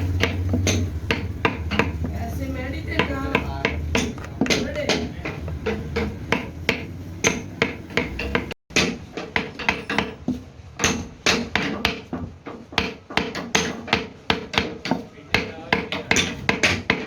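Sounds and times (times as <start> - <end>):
hand hammer striking: 0.0 - 17.0.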